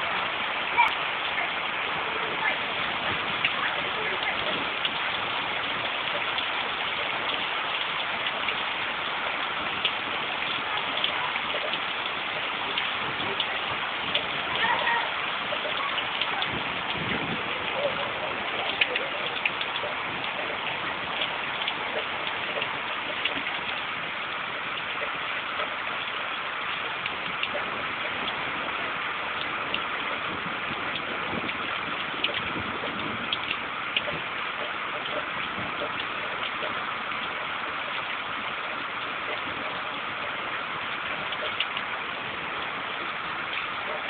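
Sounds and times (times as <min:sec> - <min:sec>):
rain pouring: 0:00.0 - 0:44.0
raindrops ticking on surfaces: 0:00.0 - 0:44.0.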